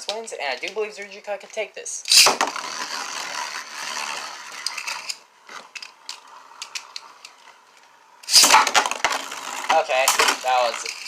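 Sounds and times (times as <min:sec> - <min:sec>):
spinning tops whirring and scraping: 0:02.1 - 0:07.4, 0:08.2 - 0:11.0.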